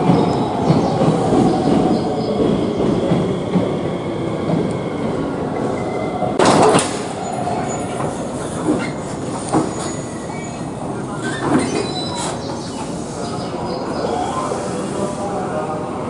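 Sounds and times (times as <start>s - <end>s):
train rumbling on track: 0.0s - 16.0s
light track clicks: 4.4s - 4.9s.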